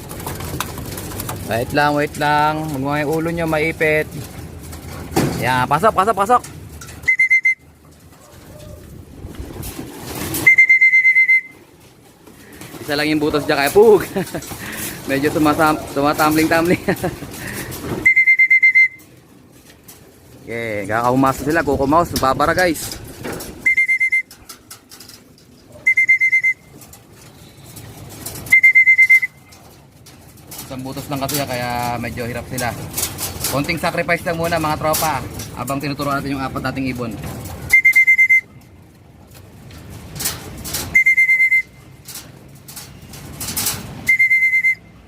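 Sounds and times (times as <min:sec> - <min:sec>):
rustling noise: 0:00.0 - 0:45.0
trilling whistle: 0:07.0 - 0:07.6, 0:10.4 - 0:11.6, 0:18.0 - 0:19.0, 0:23.6 - 0:24.3, 0:25.8 - 0:26.7, 0:28.5 - 0:29.4, 0:37.7 - 0:38.5, 0:41.0 - 0:41.8, 0:44.1 - 0:44.9.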